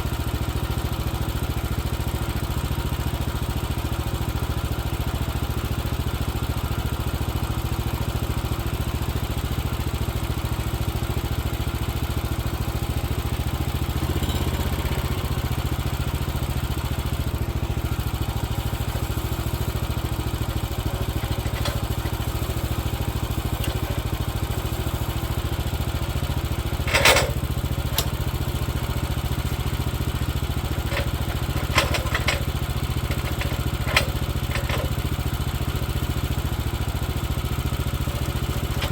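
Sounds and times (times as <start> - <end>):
sawmill engine running: 9.3 - 38.9
metal knocks and clanks: 21.2 - 22.2, 26.8 - 28.2, 30.8 - 34.9.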